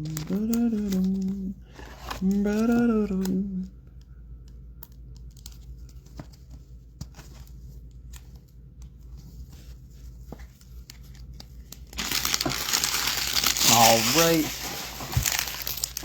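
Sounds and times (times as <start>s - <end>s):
trading cards being handled: 0.0s - 3.7s, 4.4s - 16.0s
wrapper crinkling as torn open: 11.0s - 16.0s.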